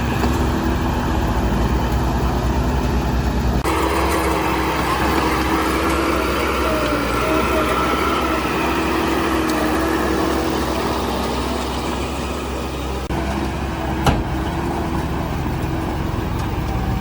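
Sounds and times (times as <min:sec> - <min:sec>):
diesel machinery engine running: 0:00.0 - 0:17.0.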